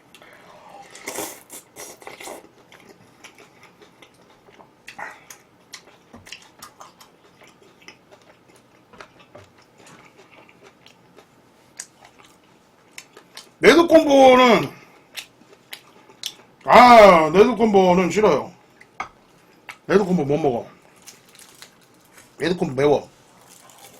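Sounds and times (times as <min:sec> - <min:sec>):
person crunching and chewing food: 0:00.0 - 0:13.6, 0:15.0 - 0:16.7, 0:20.8 - 0:22.4, 0:23.2 - 0:23.9.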